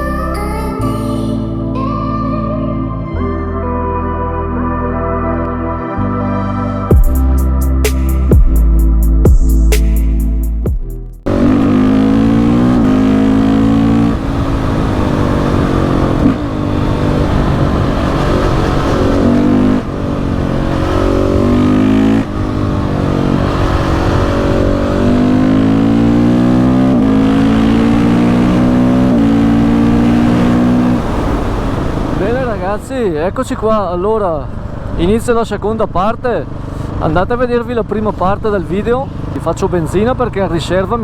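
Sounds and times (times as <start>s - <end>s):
intro music: 0.0s - 13.8s
motorcycle engine accelerating: 6.9s - 33.0s.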